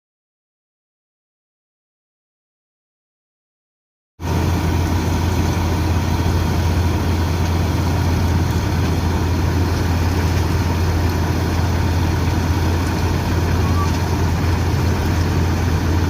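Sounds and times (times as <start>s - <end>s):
heavy diesel engine humming: 4.2s - 16.0s.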